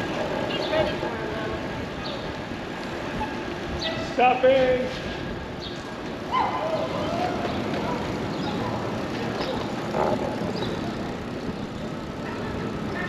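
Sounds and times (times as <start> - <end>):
bicycle road noise: 0.0 - 13.0
wind noise: 0.0 - 13.0
faint voices: 6.2 - 13.0.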